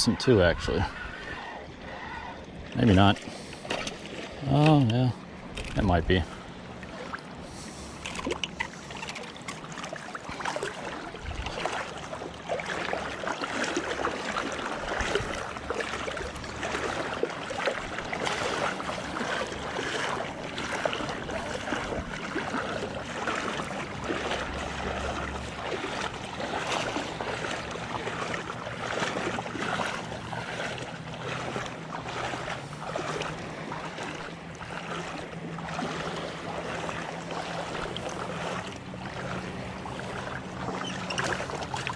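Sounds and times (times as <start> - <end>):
water sloshing and lapping: 0.0 - 41.9
wind noise: 11.2 - 11.6.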